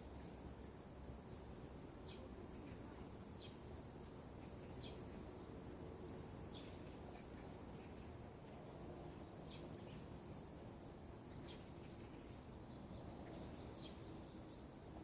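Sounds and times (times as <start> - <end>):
outdoor background noise: 0.0 - 15.0
faint bird chirps: 2.0 - 5.5, 6.5 - 8.2, 9.4 - 10.4, 11.2 - 15.0.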